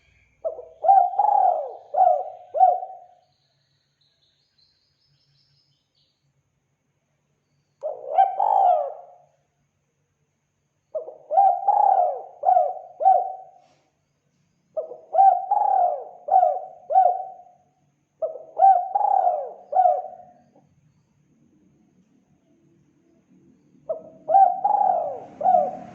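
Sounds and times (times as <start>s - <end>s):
dove cooing: 0.4s - 3.2s, 7.8s - 9.2s, 11.0s - 13.6s, 14.8s - 17.5s, 18.2s - 20.5s, 23.9s - 25.9s.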